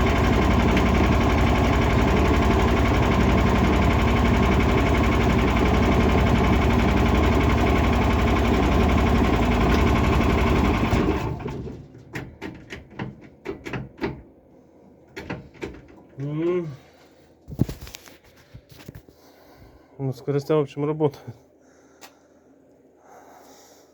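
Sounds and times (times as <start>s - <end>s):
small engine running: 0.0s - 11.7s.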